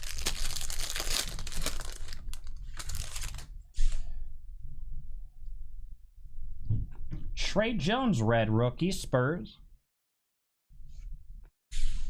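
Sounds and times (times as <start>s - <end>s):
foil wrapper tearing and crinkling: 0.0s - 3.5s.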